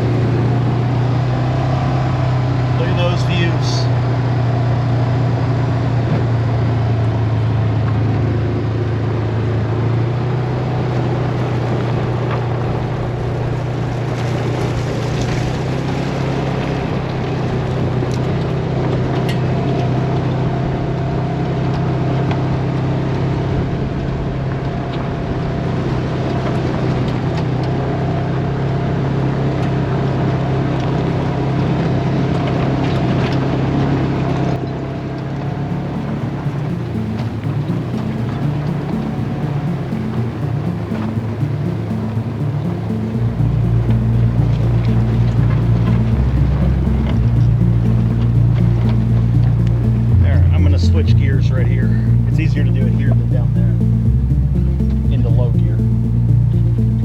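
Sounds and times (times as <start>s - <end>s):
utility vehicle engine running: 0.0s - 27.9s, 34.5s - 57.0s
tyres on rough trail: 10.9s - 20.3s.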